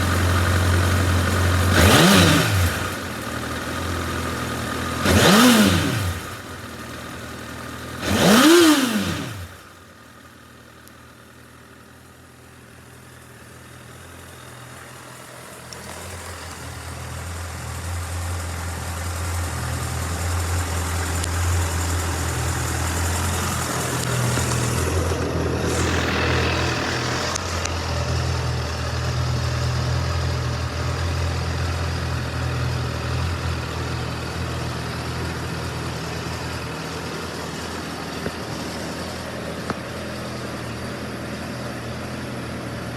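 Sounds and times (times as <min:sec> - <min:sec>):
motorcycle engine blipped: 0:00.0 - 0:42.9
steady low engine drone: 0:09.0 - 0:42.9.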